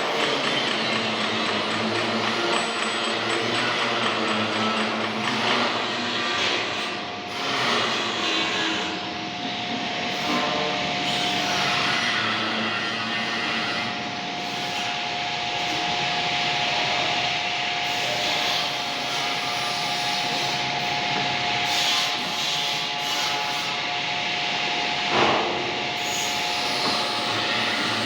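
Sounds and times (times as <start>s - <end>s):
metal lathe whine and hiss: 0.0s - 28.0s.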